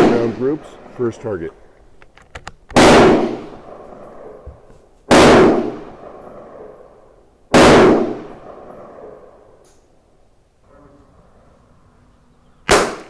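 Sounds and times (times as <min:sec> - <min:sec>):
rifle shots with ringing tail: 0:00.0 - 0:01.7, 0:02.8 - 0:10.2, 0:12.7 - 0:13.0.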